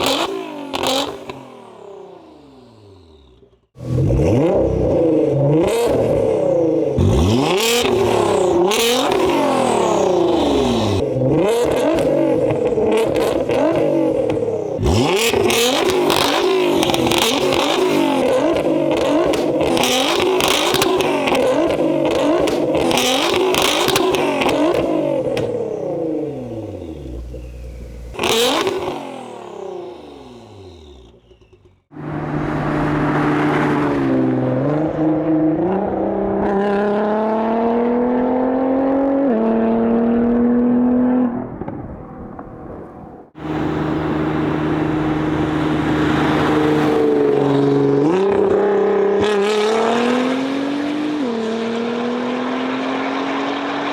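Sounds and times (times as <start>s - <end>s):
car accelerating: 0.0s - 53.9s
car engine revving: 0.0s - 53.9s.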